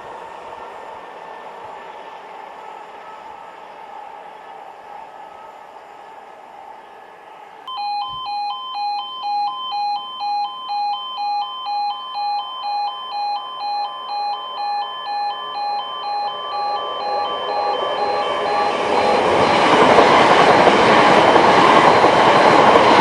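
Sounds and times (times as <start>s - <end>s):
approaching train noise: 0.0s - 7.7s, 10.6s - 23.0s
two-tone electronic alarm: 7.7s - 23.0s.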